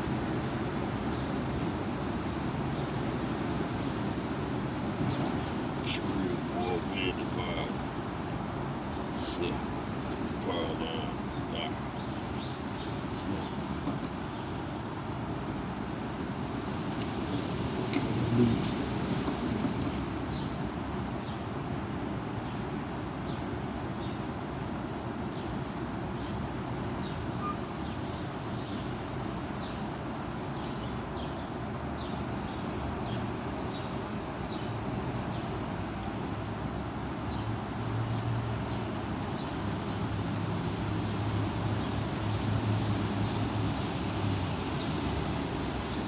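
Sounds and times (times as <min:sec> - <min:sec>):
faint bird chirps: 0:27.0 - 0:28.9.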